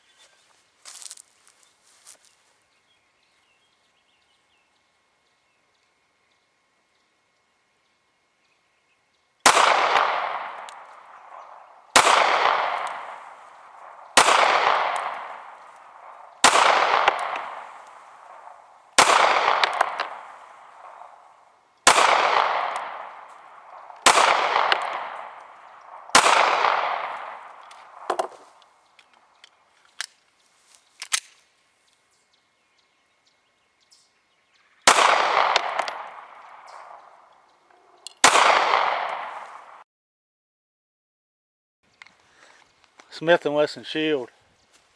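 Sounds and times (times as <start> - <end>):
pistol shots with ringing echo: 9.4 - 28.6, 34.8 - 37.3, 38.2 - 39.8.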